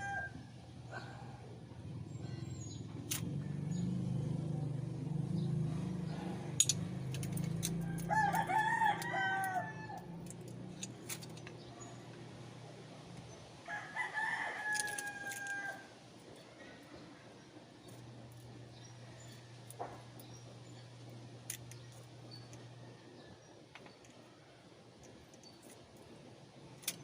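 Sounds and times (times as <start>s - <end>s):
rooster crowing: 0.0s - 1.1s, 7.7s - 10.3s, 13.6s - 16.0s
low steady hum: 0.0s - 27.0s.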